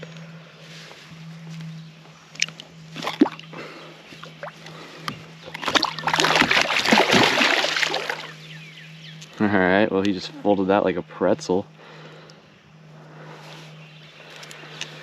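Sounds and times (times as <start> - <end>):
steady low hum: 0.0 - 15.0
fish splashing at water surface: 5.5 - 8.3.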